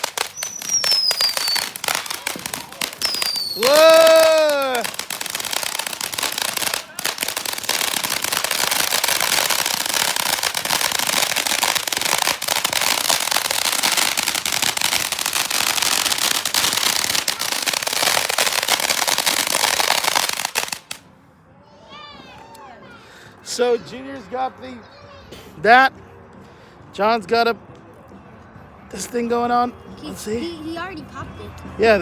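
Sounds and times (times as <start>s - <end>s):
firework fountains crackling hiss: 0.0s - 21.0s.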